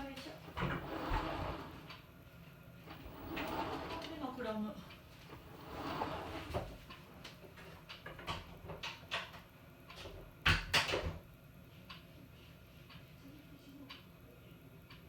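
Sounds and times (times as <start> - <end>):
washing machine clicks and knocks: 10.4 - 11.2.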